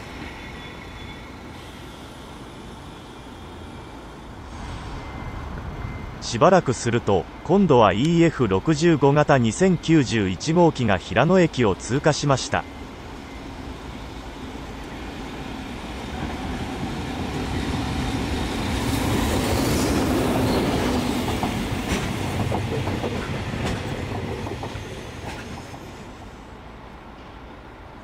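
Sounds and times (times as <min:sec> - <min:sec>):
electric locomotive passing: 0:00.0 - 0:28.0
wheels clacking over rail joints: 0:17.2 - 0:26.0.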